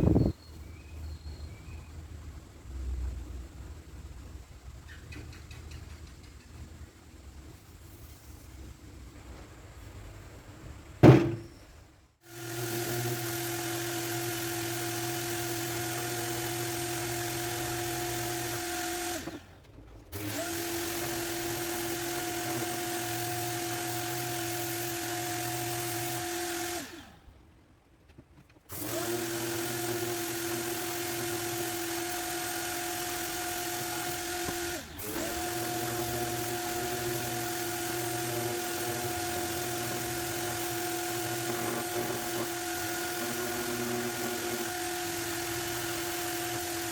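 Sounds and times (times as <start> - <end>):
electric sander running: 12.2 - 19.4, 20.2 - 27.0, 28.7 - 46.9.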